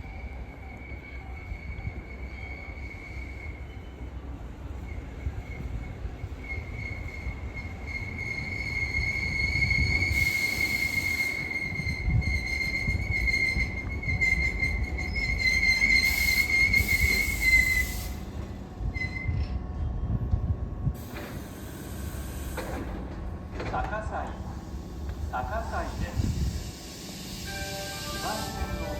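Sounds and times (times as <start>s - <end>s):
train brake squeal: 0.0s - 18.3s, 18.9s - 19.5s, 21.0s - 22.9s, 26.0s - 28.9s
train wheels rumbling: 0.0s - 28.9s
air hiss bursts: 25.9s - 28.9s.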